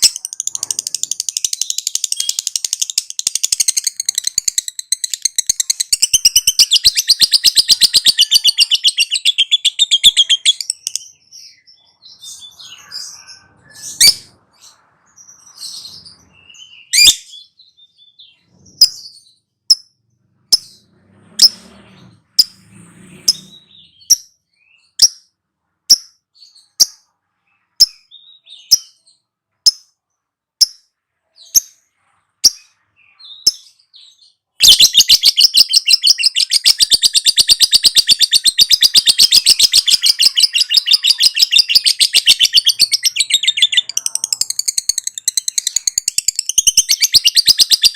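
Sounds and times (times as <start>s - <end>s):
lovebird chattering trill: 0.0s - 11.3s, 34.6s - 47.9s
lovebird sharp chirps: 0.0s - 20.8s, 23.2s - 30.0s, 30.6s - 47.9s.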